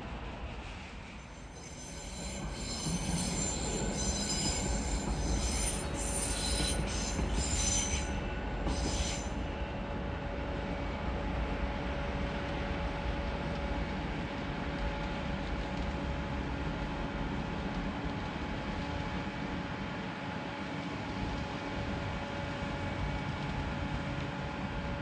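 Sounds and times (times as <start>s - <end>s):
train wheels squealing: 0.6s - 9.6s.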